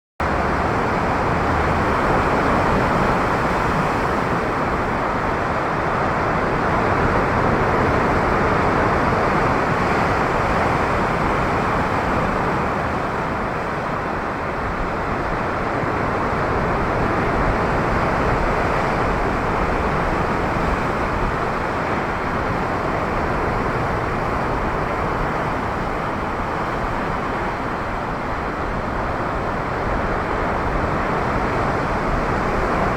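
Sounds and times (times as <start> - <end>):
surf roaring: 0.2 - 32.9
wind: 0.2 - 32.9.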